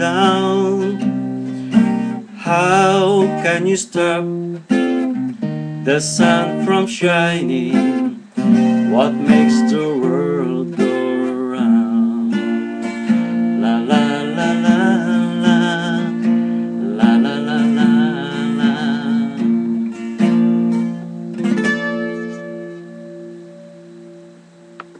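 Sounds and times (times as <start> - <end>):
person singing held melody: 0.0 - 1.2, 1.8 - 4.7, 5.8 - 20.0
acoustic guitar: 0.0 - 24.9.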